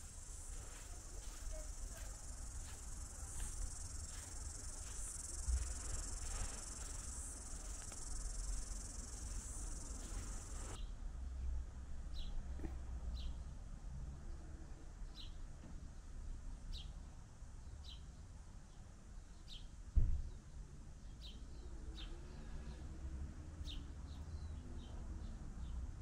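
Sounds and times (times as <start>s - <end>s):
bird chirping: 0.0s - 10.8s
steady low rumble: 0.0s - 10.8s.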